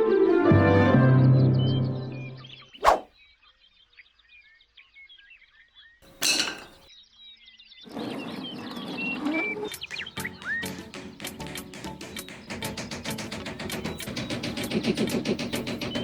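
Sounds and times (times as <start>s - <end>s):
birds chirping and twittering: 2.6s - 16.0s
loud whoosh: 2.8s - 3.0s.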